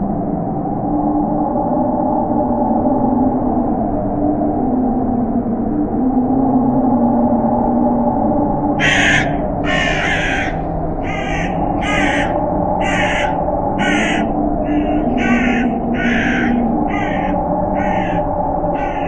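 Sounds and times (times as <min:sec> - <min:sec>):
wind howling: 0:00.0 - 0:19.0
crow cawing: 0:08.8 - 0:19.0.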